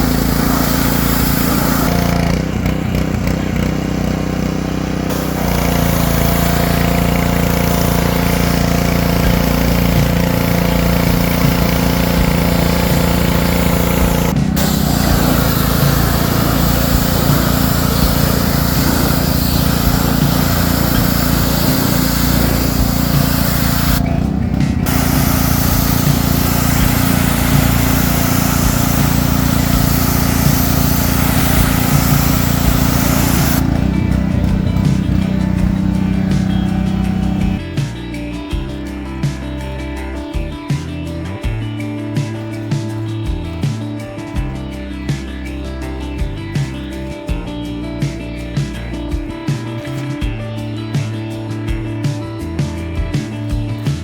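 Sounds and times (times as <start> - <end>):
loud engine running: 0.0 - 37.9.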